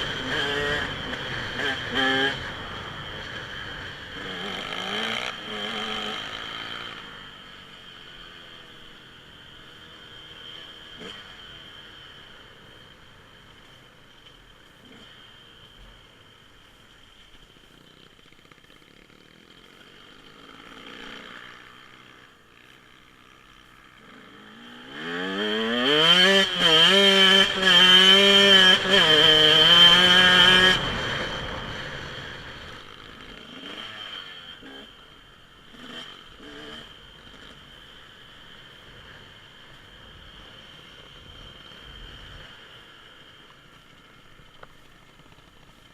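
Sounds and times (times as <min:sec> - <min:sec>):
dirt bike engine revving: 0:00.0 - 0:09.0, 0:09.6 - 0:12.1, 0:18.7 - 0:22.8, 0:23.7 - 0:42.8.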